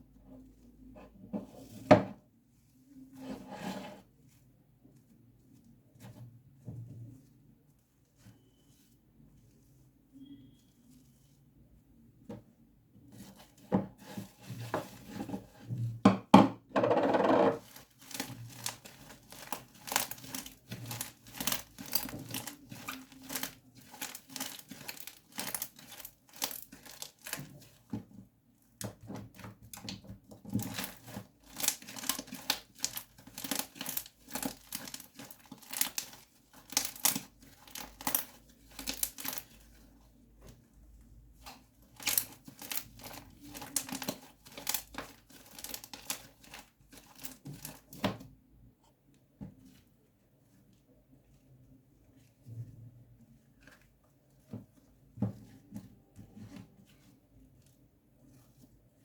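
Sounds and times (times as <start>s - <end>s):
slime squelch: 17.6s - 48.5s
slime crackling and popping: 30.6s - 39.6s.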